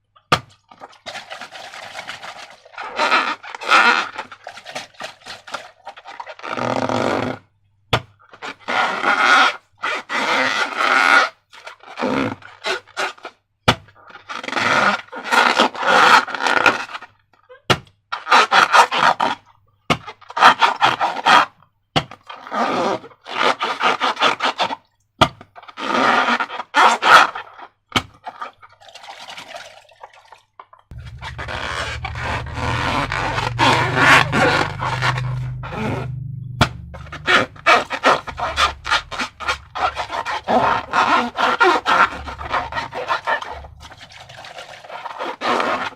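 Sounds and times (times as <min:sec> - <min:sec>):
low rumble: 0:30.9 - 0:44.6
slime squelching: 0:30.9 - 0:45.4.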